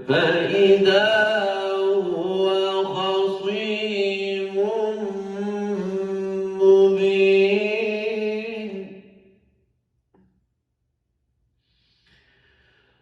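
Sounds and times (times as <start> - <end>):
man reciting in melodic chant: 0.0 - 8.9.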